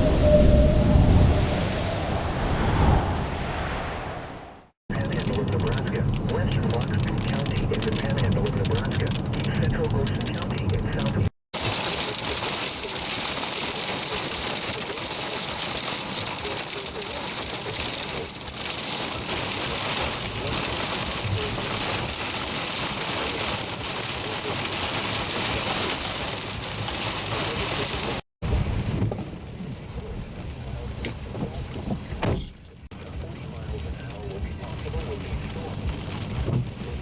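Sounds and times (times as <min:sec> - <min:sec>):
heavy rain hissing: 0:00.0 - 0:04.8.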